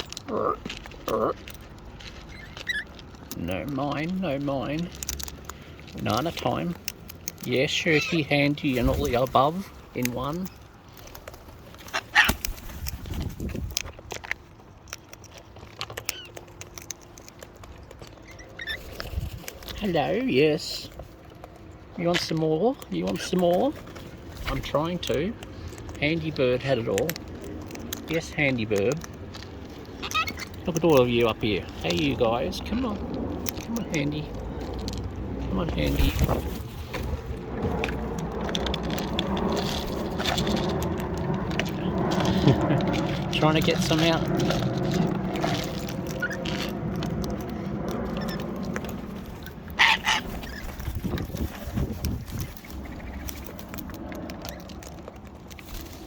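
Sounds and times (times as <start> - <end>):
beaks and claws tapping: 0.0 - 56.0
cockatoos cracking feed: 0.0 - 56.0
low rumble: 27.1 - 56.0.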